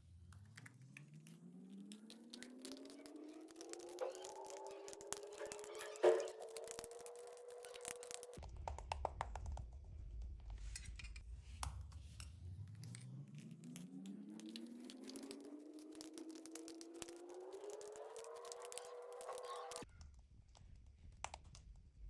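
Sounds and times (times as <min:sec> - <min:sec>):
slime sticky clicks and pops: 0:00.3 - 0:09.8, 0:12.8 - 0:22.0
low hum: 0:09.5 - 0:19.9
steady rising tone: 0:11.3 - 0:19.8.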